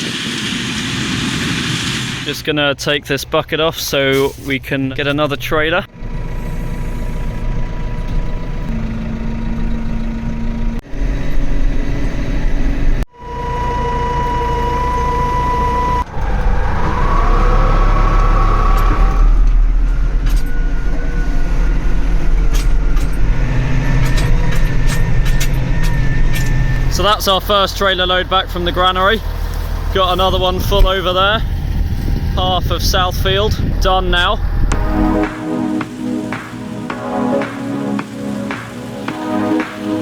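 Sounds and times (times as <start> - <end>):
tractor engine running under load: 5.9 - 15.4, 19.5 - 40.0.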